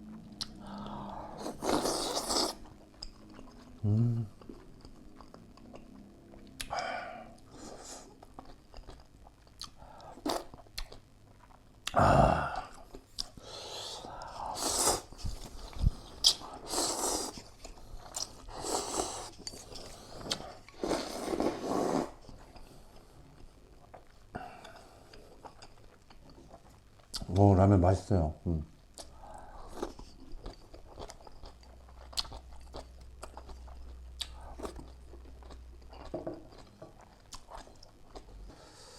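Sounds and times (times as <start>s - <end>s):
chewing: 0.0s - 12.0s, 14.2s - 27.3s, 28.9s - 38.7s
noodle slurping: 18.5s - 22.2s.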